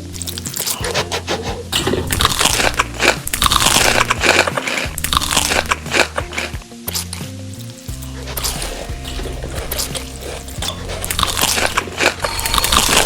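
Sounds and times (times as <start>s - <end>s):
background music: 0.0s - 13.0s
crunchy chewing: 0.0s - 13.0s.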